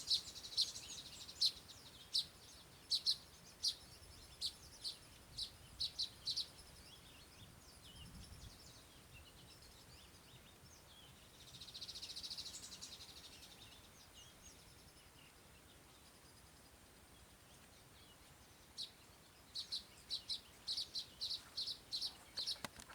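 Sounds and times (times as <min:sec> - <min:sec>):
small birds chirping: 0:00.0 - 0:22.9.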